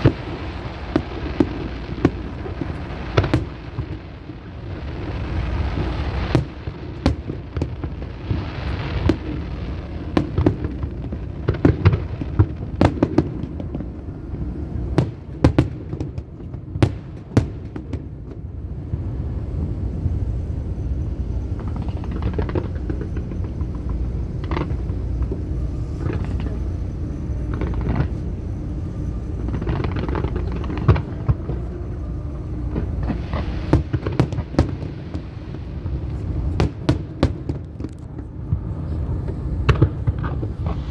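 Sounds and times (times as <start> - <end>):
fireworks bangs and crackles: 0.0 - 40.9
steady low rumble: 0.0 - 40.9.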